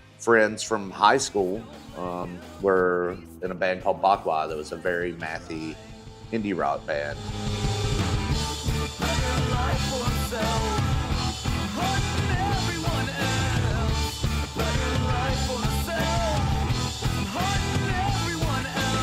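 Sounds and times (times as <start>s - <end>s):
person singing: 1.3s - 3.7s, 9.0s - 19.0s
indie rock band playing: 7.1s - 19.0s.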